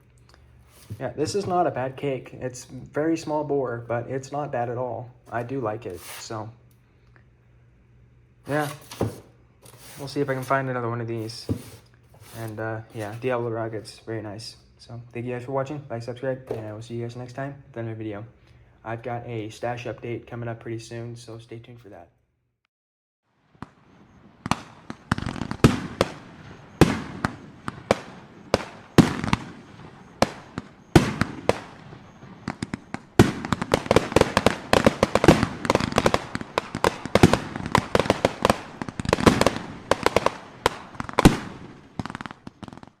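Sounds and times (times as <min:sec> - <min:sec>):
fireworks banging and popping: 0:00.6 - 0:02.2, 0:05.3 - 0:06.4, 0:08.5 - 0:14.0, 0:16.4 - 0:17.2, 0:23.6 - 0:43.0.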